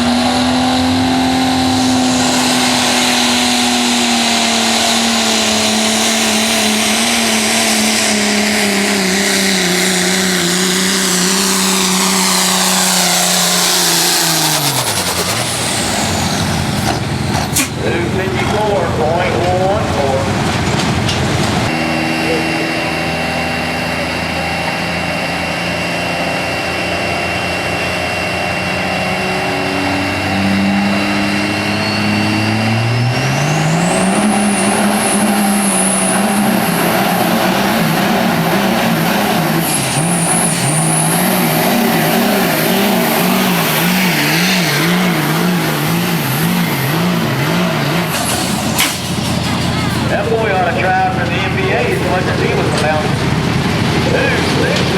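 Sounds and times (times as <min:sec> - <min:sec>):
truck engine under hard load: 0:00.0 - 0:54.9
turbocharger whistle: 0:21.7 - 0:48.8.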